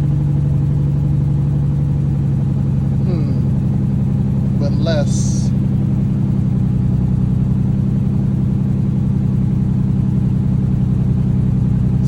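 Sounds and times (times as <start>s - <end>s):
car engine idling with misfire: 0.0s - 12.0s.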